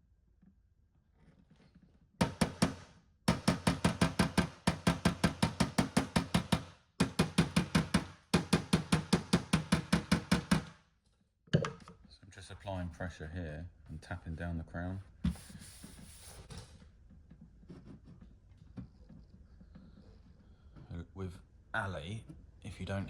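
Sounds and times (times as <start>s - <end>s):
hammer tapping metal panel: 2.2s - 10.8s.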